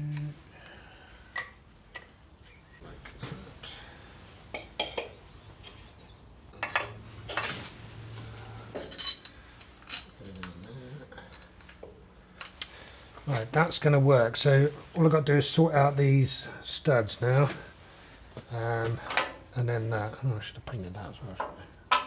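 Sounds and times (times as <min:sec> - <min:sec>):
steel parts clinking together: 0:08.7 - 0:10.5.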